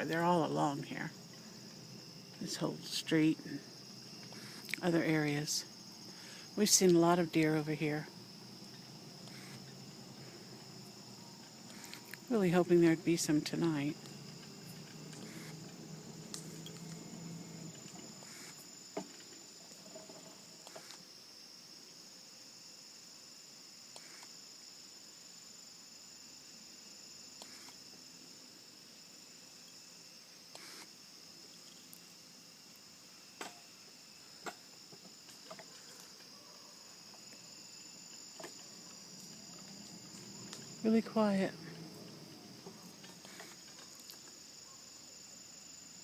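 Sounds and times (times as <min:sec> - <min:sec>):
crickets trilling: 0:00.0 - 0:46.0
faint low hum: 0:00.0 - 0:46.0.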